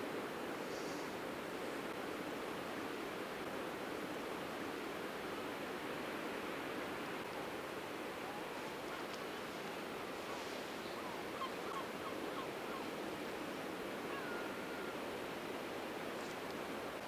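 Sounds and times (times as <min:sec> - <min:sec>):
long drawn-out bird call: 0:10.2 - 0:13.0, 0:14.1 - 0:15.0.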